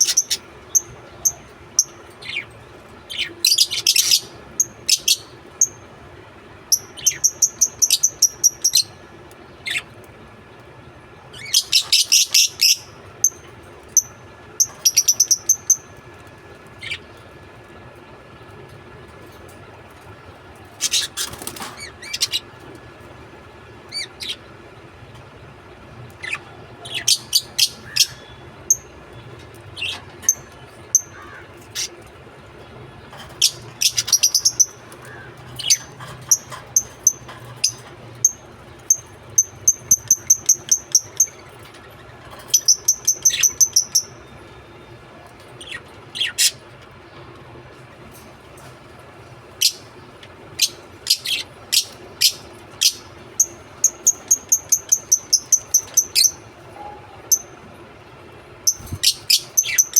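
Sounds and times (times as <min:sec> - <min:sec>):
lovebirds chirping: 0:00.0 - 0:05.9, 0:06.7 - 0:09.0, 0:11.3 - 0:16.0, 0:26.1 - 0:44.5, 0:49.5 - 0:50.0, 0:50.6 - 0:57.6, 0:58.7 - 0:59.9.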